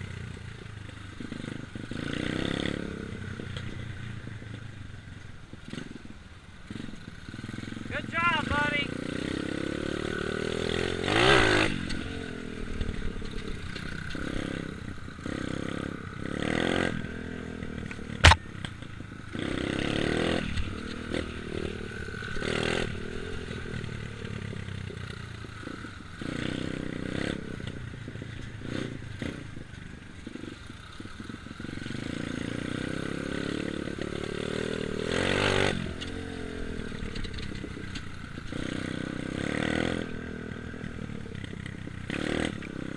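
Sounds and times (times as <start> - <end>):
dirt bike engine revving: 0.0 - 4.7, 5.6 - 42.9
sharp click: 18.2 - 18.4.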